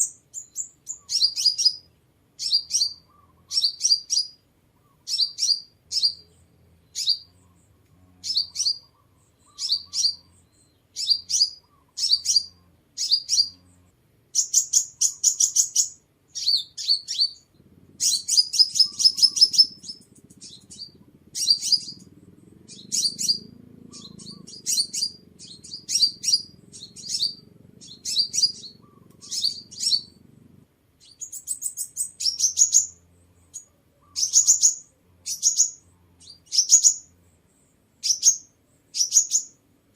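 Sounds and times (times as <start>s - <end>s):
sunbird chirping: 0.0s - 39.9s.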